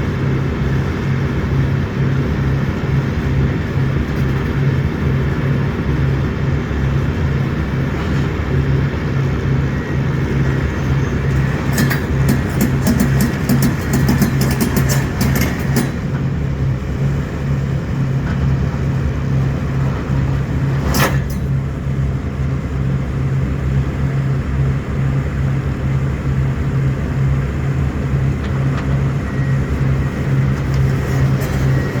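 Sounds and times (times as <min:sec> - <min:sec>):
heavy diesel engine running: 0:00.0 - 0:32.0
clicks and rattles: 0:11.3 - 0:16.1.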